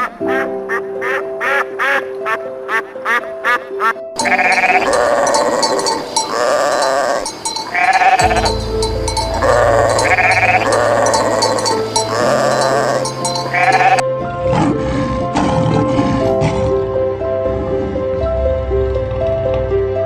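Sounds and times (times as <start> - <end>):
background music: 0.0 - 20.0
sheep bleating: 4.2 - 14.0.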